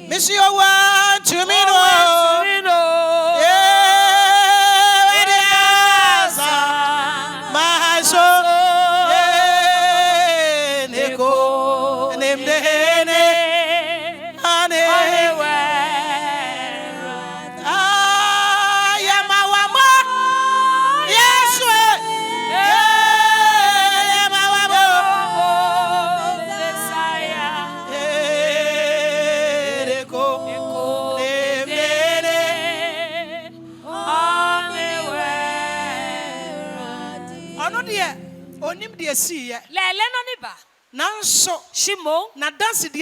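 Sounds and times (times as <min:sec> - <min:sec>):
person singing gospel song: 0:00.0 - 0:39.9
sustained accompaniment: 0:10.9 - 0:39.3.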